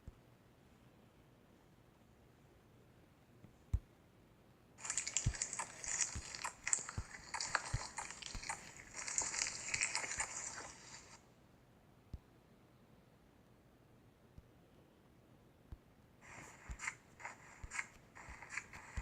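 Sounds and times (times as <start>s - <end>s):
slime crackling and popping: 4.8s - 11.2s.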